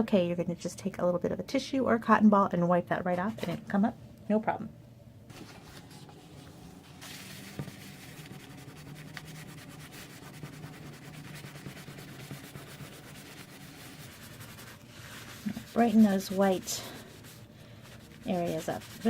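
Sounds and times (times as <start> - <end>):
soft wipe rubbing card: 5.3 - 19.0.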